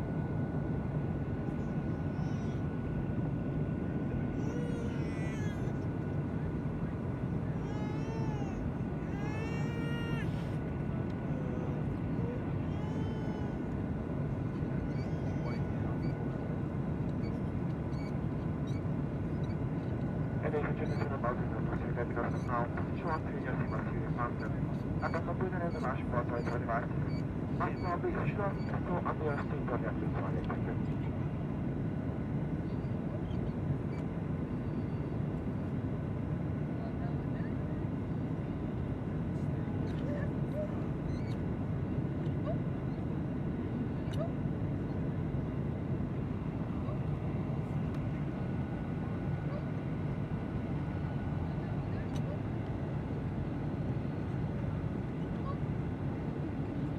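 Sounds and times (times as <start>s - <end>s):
airliner cabin roar: 0.0s - 56.9s
faint steady whine: 0.0s - 56.9s.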